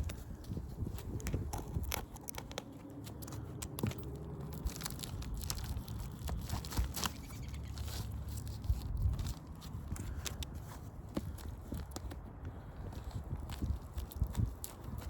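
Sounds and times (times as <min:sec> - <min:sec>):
crackling and scraping on roof: 0:00.0 - 0:15.0.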